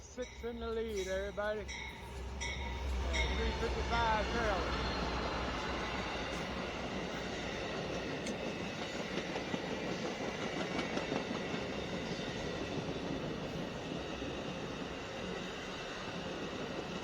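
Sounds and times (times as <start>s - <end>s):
train wheels rushing on rails: 0.0s - 17.0s.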